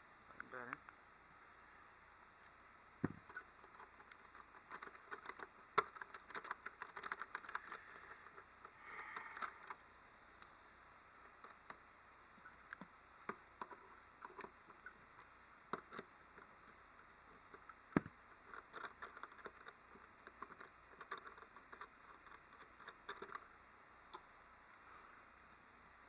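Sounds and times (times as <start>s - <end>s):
faint clicks and taps of handling: 11.3s - 23.5s.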